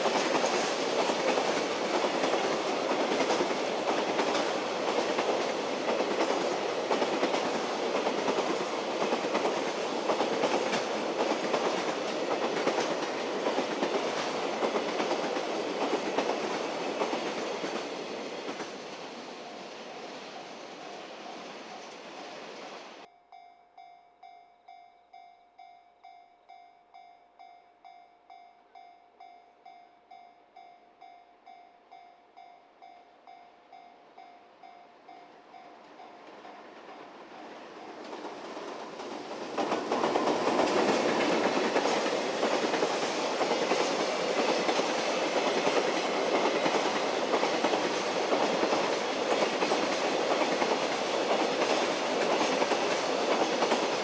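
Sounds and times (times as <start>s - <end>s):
freight train passing: 0.0s - 23.1s, 24.7s - 54.0s
train wheels clattering over rail joints: 36.6s - 54.0s.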